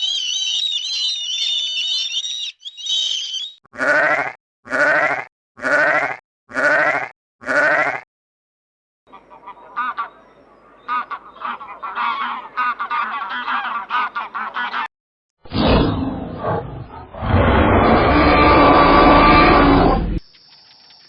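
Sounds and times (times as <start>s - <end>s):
domestic fowl calling: 9.1s - 10.2s, 10.9s - 14.9s
loud rough sound: 15.5s - 20.2s.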